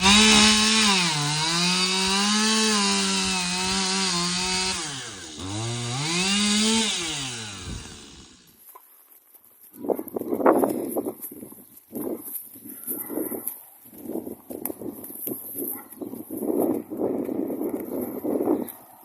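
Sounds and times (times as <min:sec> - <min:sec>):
small engine revving: 0:00.0 - 0:08.6.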